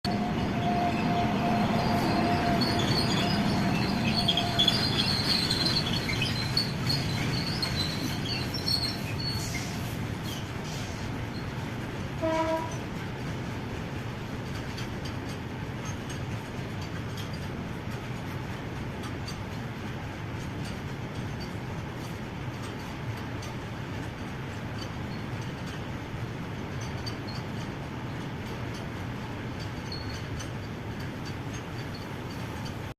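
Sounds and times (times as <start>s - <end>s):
freight train rumbling past: 0.0s - 32.9s
train horn blast: 12.2s - 12.8s.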